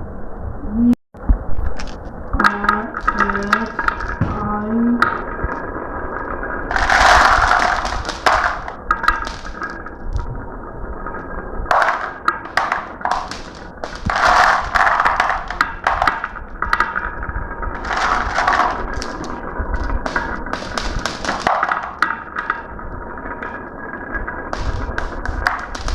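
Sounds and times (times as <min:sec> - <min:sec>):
marbles clattering on a marble run: 0:01.8 - 0:25.9.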